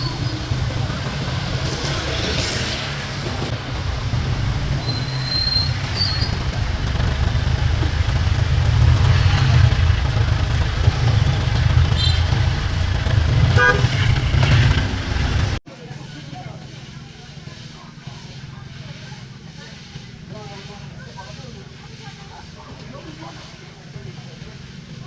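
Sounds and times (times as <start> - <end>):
street traffic rumble: 0.0 - 25.0
car horn toot: 10.8 - 14.8.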